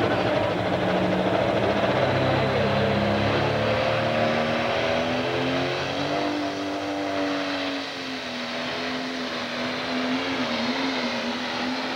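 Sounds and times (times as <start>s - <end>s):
engine running: 0.0s - 5.3s.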